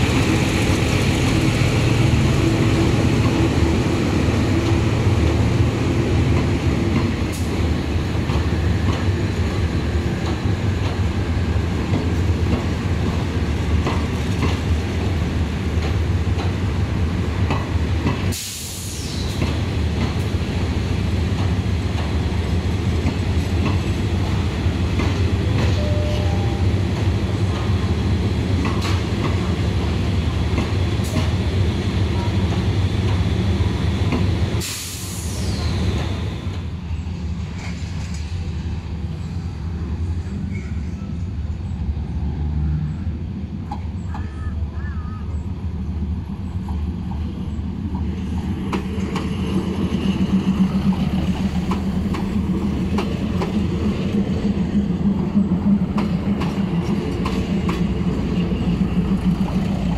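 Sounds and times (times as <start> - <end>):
diesel train engine rumble: 0.0 - 59.9
wheels clicking on track: 47.9 - 59.9.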